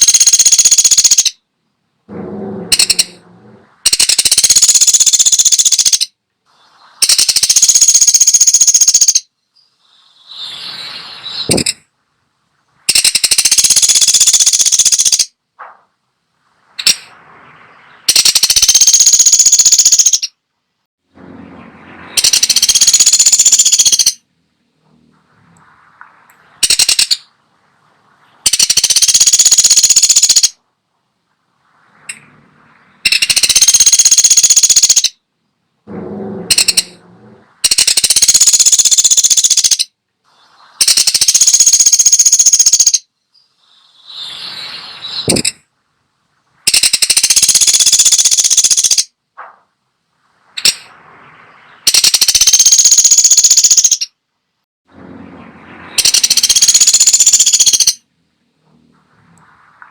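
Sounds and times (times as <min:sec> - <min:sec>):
woodpecker rattling calls: 0:00.0 - 0:01.4, 0:02.7 - 0:03.2, 0:03.8 - 0:06.2, 0:07.0 - 0:10.4, 0:11.3 - 0:11.8, 0:12.9 - 0:15.4, 0:16.8 - 0:17.1, 0:17.8 - 0:20.4, 0:22.2 - 0:24.2, 0:26.6 - 0:27.3, 0:28.4 - 0:30.6, 0:33.0 - 0:35.2, 0:36.4 - 0:37.0, 0:37.6 - 0:39.9, 0:40.8 - 0:44.3, 0:45.1 - 0:45.6, 0:46.7 - 0:49.2, 0:50.6 - 0:51.0, 0:51.6 - 0:54.2, 0:55.9 - 0:58.0.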